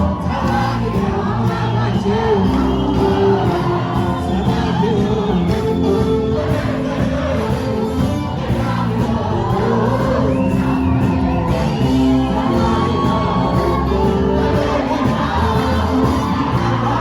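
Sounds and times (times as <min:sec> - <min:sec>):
crowd voices singing along: 0:00.0 - 0:17.0
gospel singing over instruments: 0:00.0 - 0:17.0.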